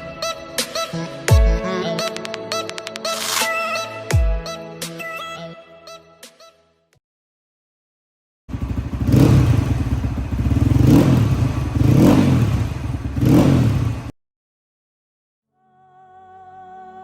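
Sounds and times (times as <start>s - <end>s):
dirt bike engine revving: 8.5s - 14.1s.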